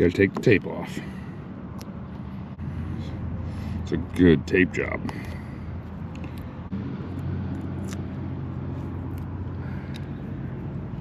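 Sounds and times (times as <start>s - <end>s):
low motor hum: 5.1s - 11.0s.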